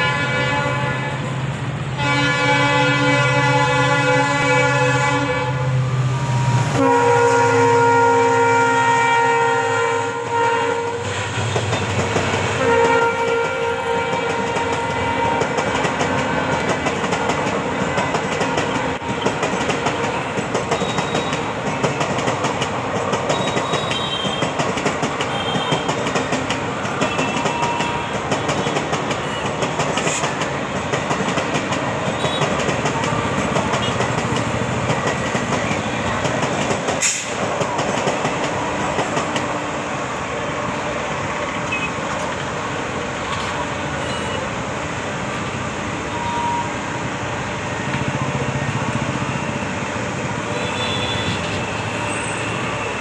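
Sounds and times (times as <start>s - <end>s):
locomotive horn: 0.0s - 1.4s, 2.0s - 5.8s, 6.4s - 16.7s, 32.1s - 32.6s, 43.9s - 44.5s, 46.1s - 46.8s, 50.4s - 53.0s
train coaches rumbling past: 0.0s - 53.0s.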